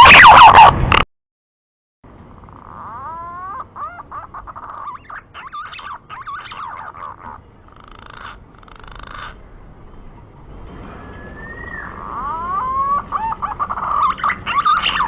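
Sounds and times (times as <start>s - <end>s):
green pigeon whistling call: 10.9s - 15.0s.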